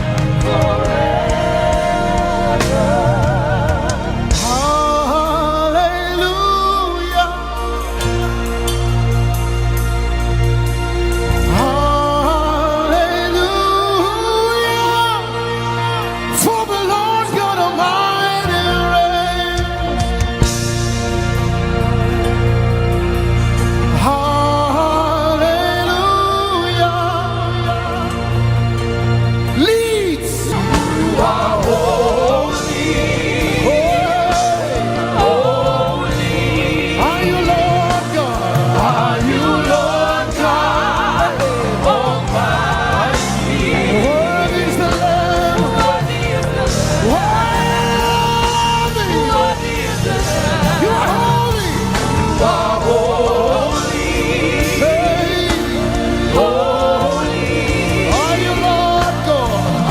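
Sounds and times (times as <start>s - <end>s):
keyboard and bass backing: 0.0s - 59.9s
voices singing gospel: 0.0s - 59.9s.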